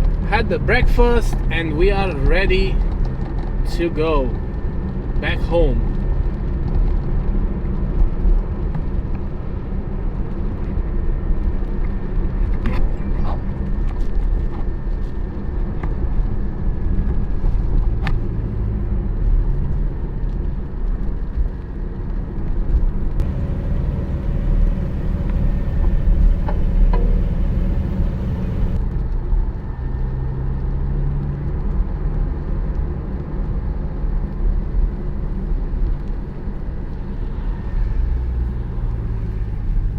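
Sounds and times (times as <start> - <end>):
car engine drone: 0.0 - 4.6, 23.2 - 28.8.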